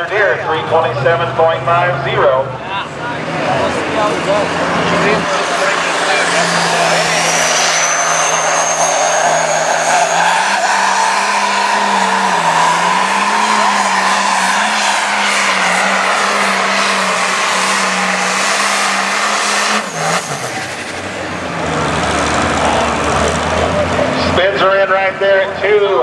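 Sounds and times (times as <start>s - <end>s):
diesel tractor engine under load: 0.0s - 26.0s
turbo whistle: 6.2s - 15.8s.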